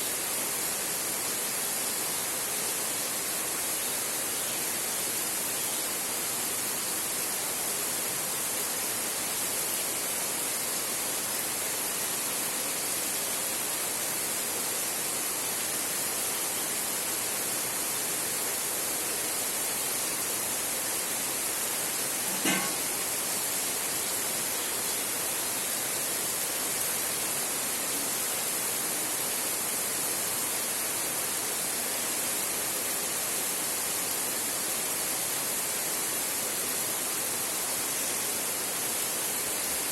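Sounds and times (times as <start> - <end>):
heavy rain on a tin roof: 0.0 - 39.9
sharp knock: 22.3 - 23.0.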